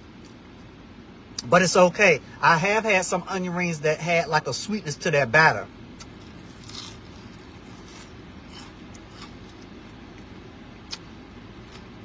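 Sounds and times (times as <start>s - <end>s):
low car hum: 0.0s - 12.0s
chewing with crunches: 6.0s - 12.0s.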